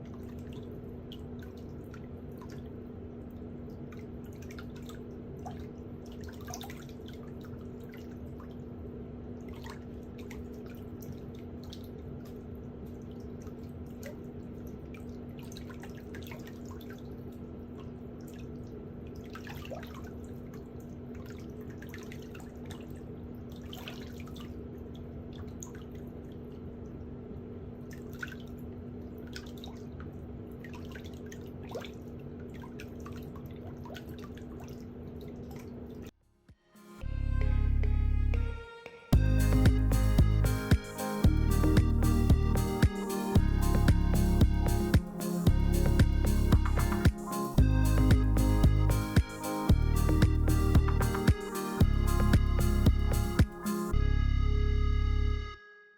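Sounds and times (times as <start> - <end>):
water dripping and trickling: 0.0 - 27.1, 27.8 - 36.1
steady low hum: 39.2 - 55.6.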